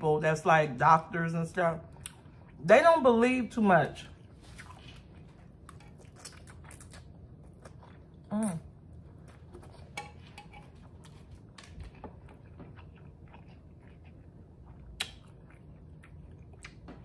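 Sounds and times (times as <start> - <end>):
chewing noodles: 4.2 - 17.0
wet mouth clicks: 14.9 - 15.3.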